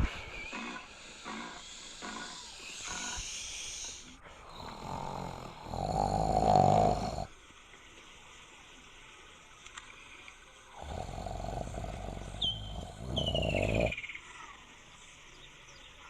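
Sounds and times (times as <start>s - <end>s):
big cat calling: 0.5s - 3.3s, 10.8s - 14.0s.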